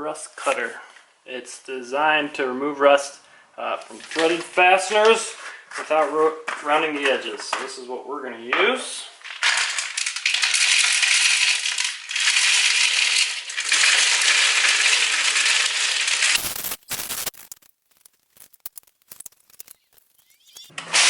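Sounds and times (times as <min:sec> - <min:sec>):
scattered clicks: 0:16.4 - 0:20.7.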